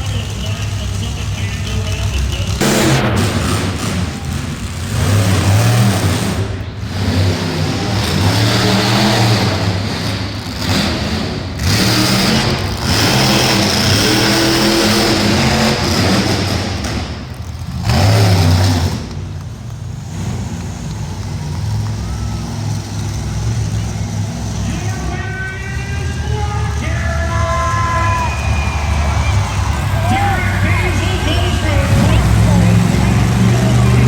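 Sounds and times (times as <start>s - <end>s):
monster truck engines revving: 0.0s - 34.0s.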